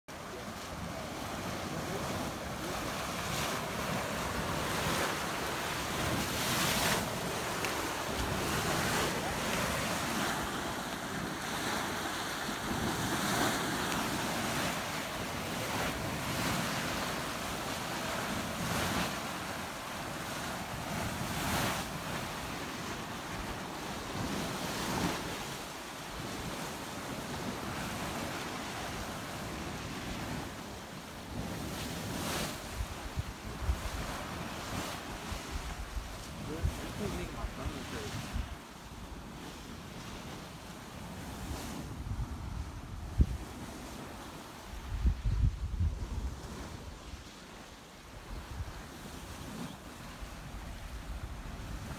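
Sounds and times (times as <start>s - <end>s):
boiling mud churning: 0.2s - 21.2s.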